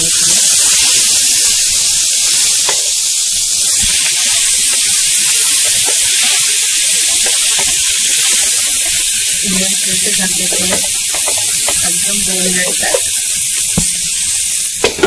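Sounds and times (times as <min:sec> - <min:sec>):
pea pods sizzling in oil: 0:00.0 - 0:15.0.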